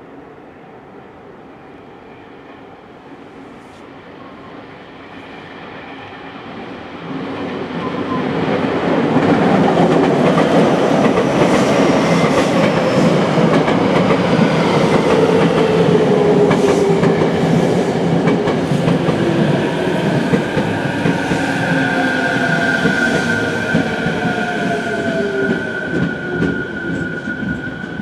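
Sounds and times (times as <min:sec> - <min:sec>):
train braking whine: 0:19.7 - 0:28.0.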